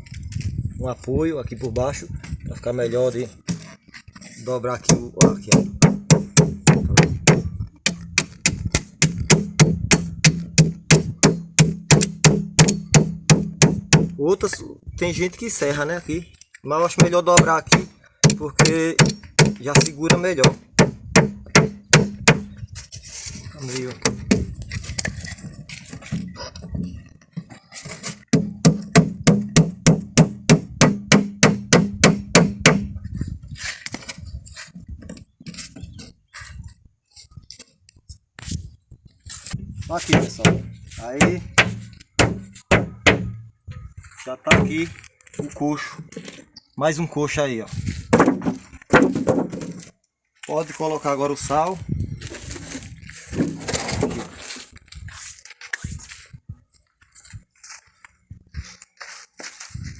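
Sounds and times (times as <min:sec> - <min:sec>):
hammer blows on nails: 0:04.9 - 0:14.2, 0:17.0 - 0:22.6, 0:24.0 - 0:24.5, 0:28.3 - 0:33.0, 0:40.0 - 0:43.5, 0:44.5 - 0:44.9.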